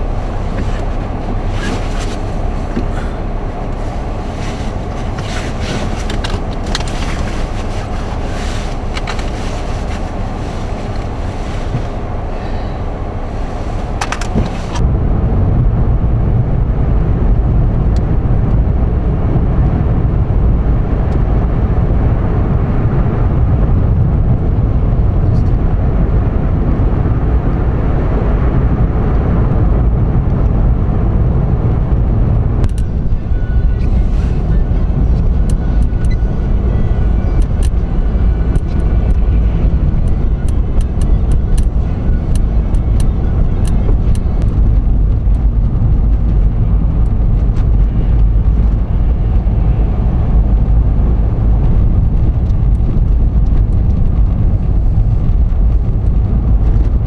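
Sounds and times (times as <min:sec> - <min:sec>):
vehicle road and wind noise: 0:00.0 - 0:57.0
clicks and crackles: 0:05.0 - 0:08.1, 0:08.7 - 0:10.1, 0:14.0 - 0:14.8.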